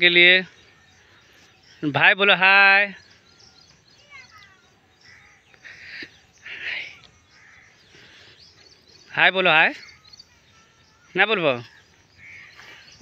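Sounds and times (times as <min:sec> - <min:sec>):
birds chirping: 0:00.0 - 0:13.0
short harsh bird calls: 0:04.0 - 0:13.0.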